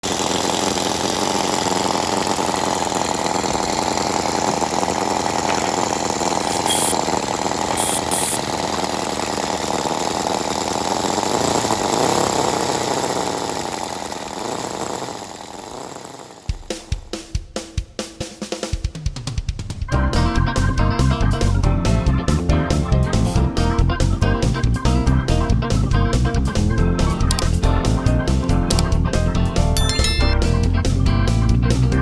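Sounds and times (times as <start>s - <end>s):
small model engine buzzing: 0.0s - 17.0s.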